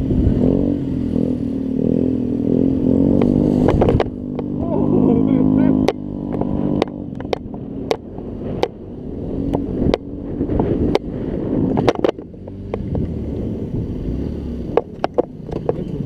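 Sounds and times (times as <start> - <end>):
wind buffeting microphone: 0.0 - 16.0
sharp clicks and knocks: 3.2 - 4.5, 5.8 - 8.8, 11.8 - 13.1, 14.7 - 16.0.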